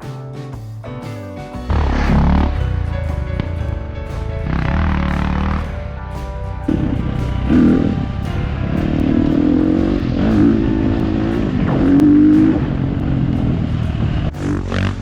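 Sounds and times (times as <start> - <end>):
dirt bike engine revving: 1.7 - 2.8, 4.4 - 5.7, 6.6 - 15.0.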